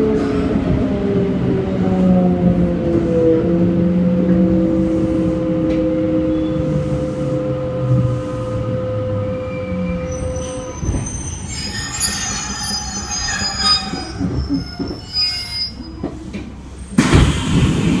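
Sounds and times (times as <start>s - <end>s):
high squeal from undercarriage: 9.4s - 16.0s
sudden loud burst of noise: 17.0s - 18.0s.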